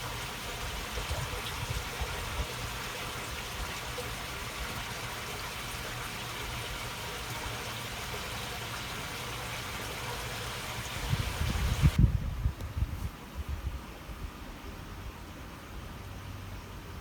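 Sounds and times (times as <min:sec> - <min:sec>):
water babbling in a stream: 0:00.0 - 0:12.0.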